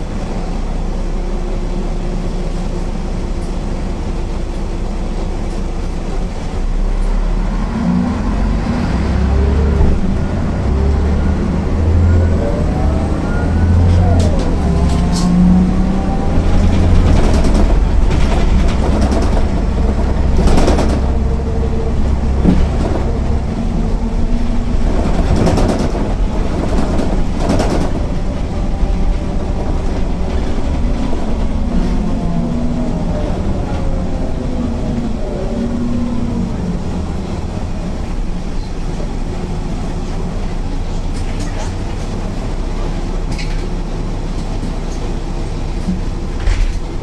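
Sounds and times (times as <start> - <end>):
bus engine droning: 0.0 - 47.0
bus body knocks and rattles: 16.3 - 32.3, 45.8 - 47.0.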